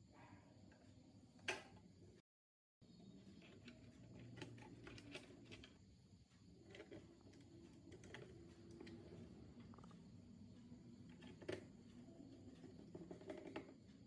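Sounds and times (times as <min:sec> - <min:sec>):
low room hum: 0:02.8 - 0:14.0.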